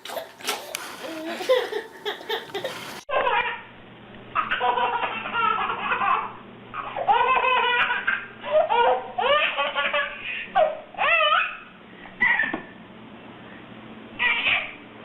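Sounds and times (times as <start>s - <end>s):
young child laughing: 0.0s - 3.5s, 12.2s - 12.7s.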